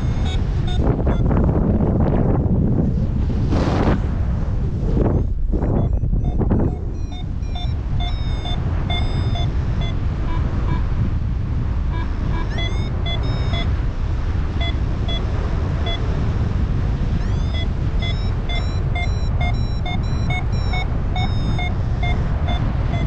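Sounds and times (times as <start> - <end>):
variometer beeping: 0.0 - 1.5, 5.0 - 11.1, 11.8 - 16.3, 17.0 - 23.0
strong wind rushing over microphone: 0.0 - 23.0.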